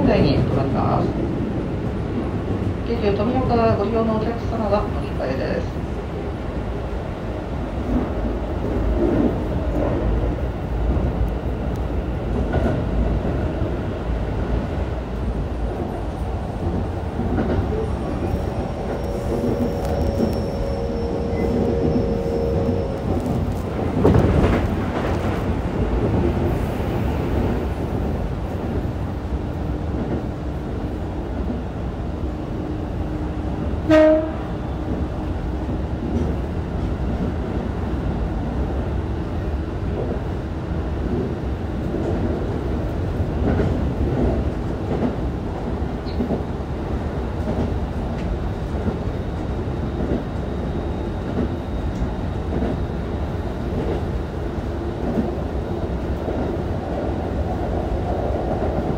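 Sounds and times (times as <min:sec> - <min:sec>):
train wheels rumbling: 0:00.0 - 0:58.9
train horn blast: 0:18.7 - 0:23.3, 0:33.9 - 0:34.6.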